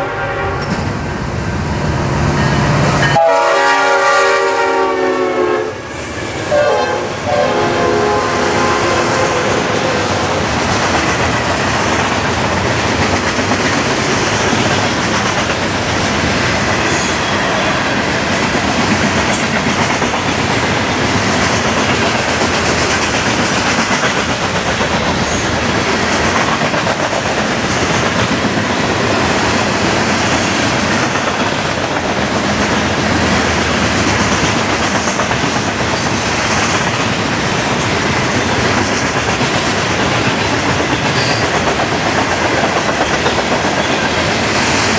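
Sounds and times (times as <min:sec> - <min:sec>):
clickety-clack over rail joints: 0:10.4 - 0:44.9.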